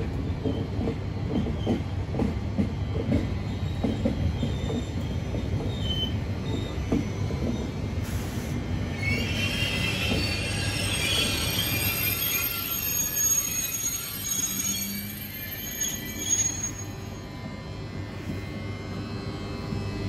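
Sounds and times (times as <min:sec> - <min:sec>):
train rumbling into platform: 0:00.0 - 0:20.0
high metallic wheel squeals: 0:03.6 - 0:07.8, 0:08.9 - 0:17.4.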